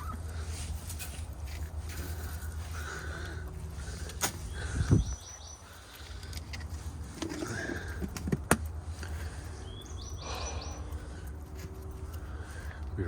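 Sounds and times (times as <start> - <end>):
steady low hum: 0.0 - 13.0
small bird chirping: 4.4 - 6.3, 9.3 - 11.3
lower bird call: 9.6 - 11.2.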